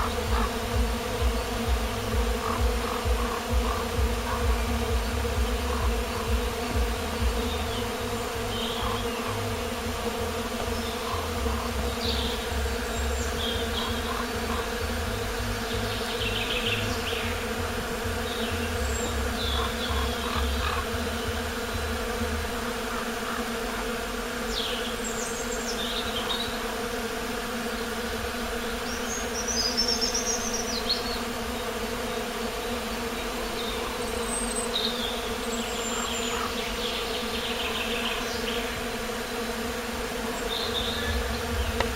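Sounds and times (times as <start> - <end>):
buzzing hum: 0.0 - 41.9
songbirds chirping and trilling: 0.0 - 41.9.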